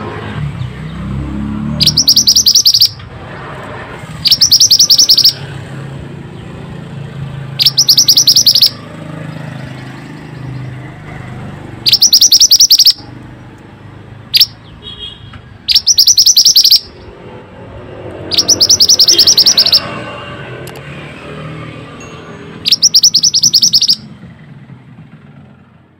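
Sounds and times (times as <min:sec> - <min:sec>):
bird rapid high trill: 0:01.8 - 0:03.0, 0:04.1 - 0:05.6, 0:07.5 - 0:10.7, 0:11.8 - 0:13.1, 0:14.3 - 0:14.6, 0:15.7 - 0:17.2, 0:18.2 - 0:20.1, 0:22.6 - 0:24.2.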